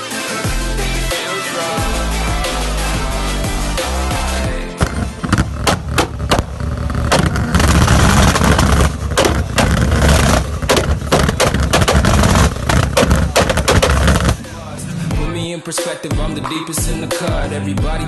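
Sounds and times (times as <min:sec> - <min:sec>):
sharp exhaust cracks: 0:04.8 - 0:15.0
car engine revving hard: 0:04.8 - 0:15.1.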